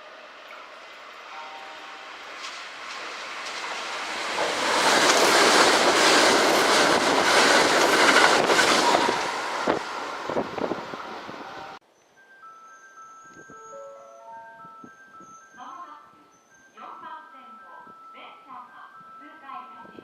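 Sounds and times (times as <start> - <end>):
electric train passing: 0.0 - 11.8, 13.5 - 15.2
wheels clacking over rail joints: 0.1 - 11.8.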